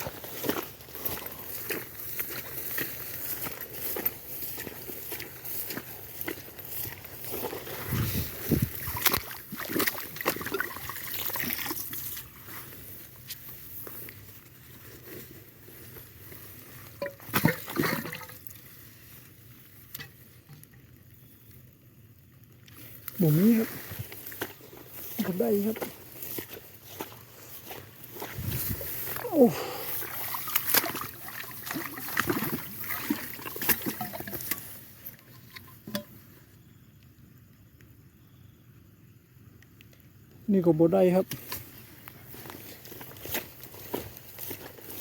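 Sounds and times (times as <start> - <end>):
water splashing and sloshing: 0.0 - 14.1, 16.3 - 19.3, 22.7 - 36.2
faint steady hiss of water: 0.0 - 45.0.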